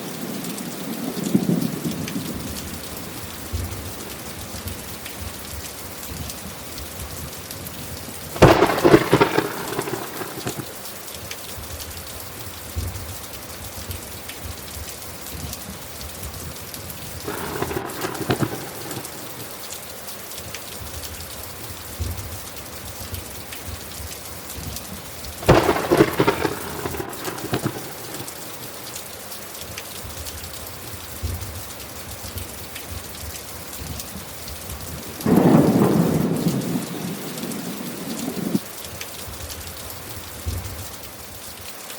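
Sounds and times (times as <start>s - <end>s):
steady rain: 0.0s - 41.9s
crackling thunderclaps: 0.9s - 11.0s, 15.3s - 19.8s, 20.8s - 29.0s, 30.0s - 39.6s.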